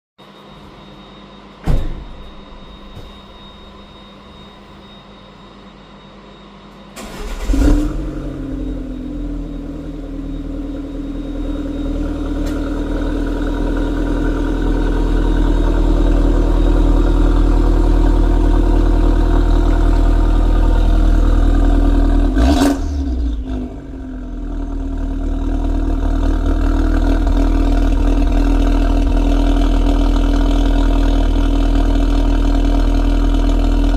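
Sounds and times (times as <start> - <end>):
car engine cranking and starting: 7.0 - 8.7
engine running through loud exhaust: 7.2 - 33.9.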